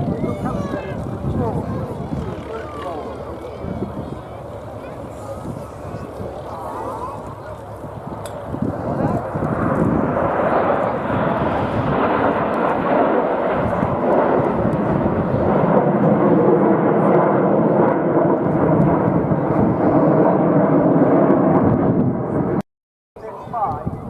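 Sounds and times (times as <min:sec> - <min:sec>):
jets flying past: 0:00.0 - 0:22.6.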